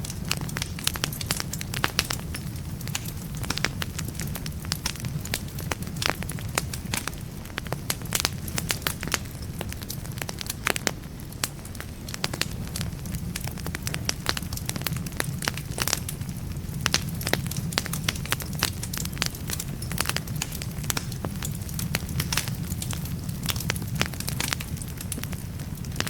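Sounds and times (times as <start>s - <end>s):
wood fire crackling and popping: 0.0s - 26.0s.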